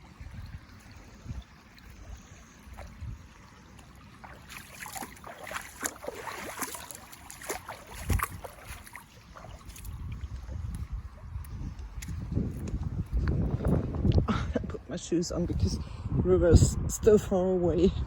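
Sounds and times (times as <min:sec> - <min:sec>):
feet splashing through water: 0:00.0 - 0:14.2
wind thumps on microphone: 0:07.4 - 0:17.2.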